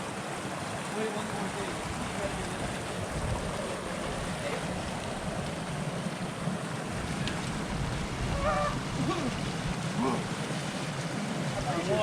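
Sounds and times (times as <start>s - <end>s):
creek water rushing: 0.0s - 12.0s
wind noise: 1.8s - 5.6s, 6.9s - 9.9s.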